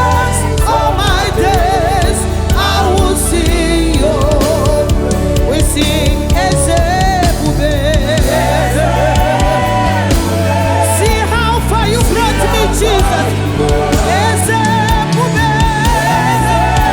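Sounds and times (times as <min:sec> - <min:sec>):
gospel band playing: 0:00.0 - 0:16.9
voices singing: 0:00.0 - 0:16.9.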